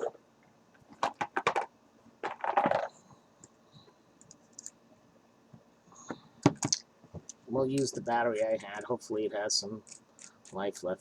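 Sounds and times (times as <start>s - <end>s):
small metal and plastic clicks: 9.8s - 10.6s.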